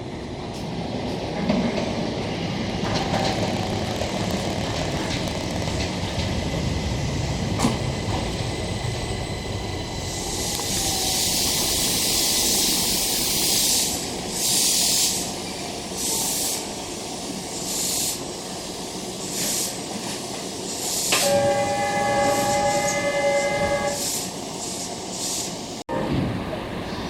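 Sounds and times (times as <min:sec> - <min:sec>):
train running with hissing: 0:00.0 - 0:27.0
train horn chord: 0:21.2 - 0:24.0.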